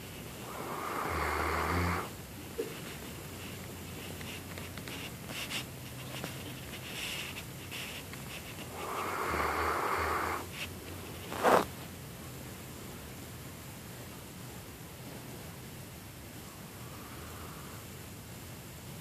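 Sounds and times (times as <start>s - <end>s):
dog snoring: 0.4s - 2.2s, 8.7s - 10.5s.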